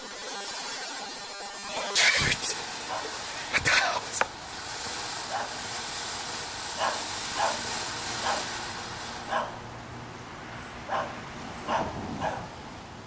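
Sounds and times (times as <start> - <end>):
firework hissing: 0.0 - 11.5
dog barking: 5.3 - 5.6, 6.8 - 7.6, 8.2 - 8.5, 9.3 - 9.6, 10.9 - 12.5.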